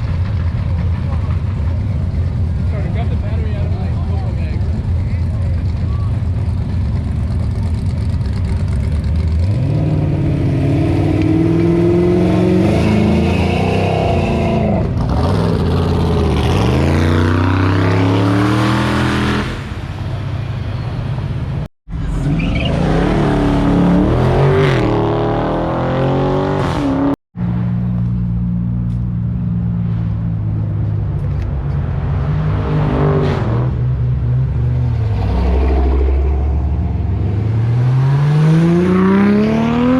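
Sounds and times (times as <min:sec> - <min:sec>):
car engines revving past: 0:07.4 - 0:27.7, 0:29.5 - 0:39.9.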